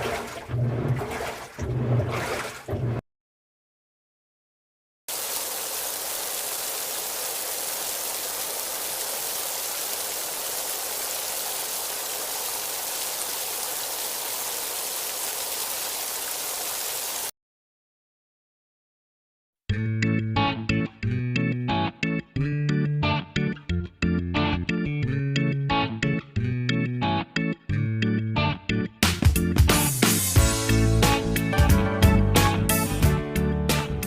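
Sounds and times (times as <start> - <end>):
running water rushing: 0.0 - 3.0, 5.1 - 17.3.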